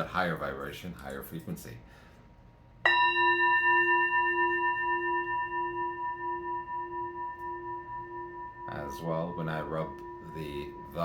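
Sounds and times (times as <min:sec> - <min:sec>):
singing bowl struck and ringing: 0:02.8 - 0:11.0.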